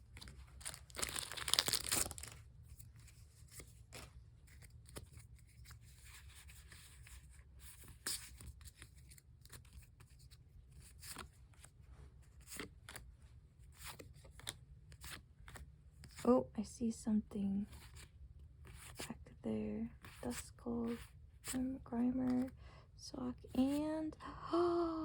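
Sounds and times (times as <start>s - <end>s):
cards clicking and rustling: 0.0s - 16.2s
packaging tearing and crinkling: 0.2s - 2.4s.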